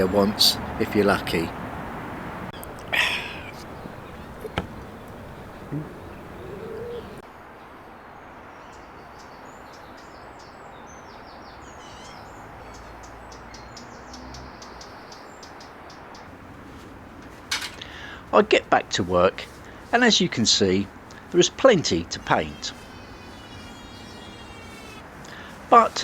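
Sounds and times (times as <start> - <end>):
small birds chirping: 0.0 - 7.2, 8.5 - 26.0
outdoor background hiss: 0.0 - 26.0
faint knocks: 2.6 - 7.2.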